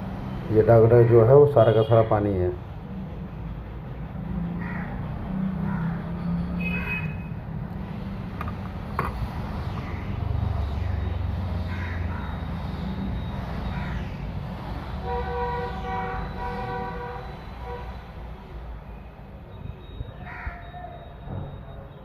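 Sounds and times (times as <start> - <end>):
passing road traffic rumble: 0.0 - 22.0
vehicle horn: 15.0 - 18.1.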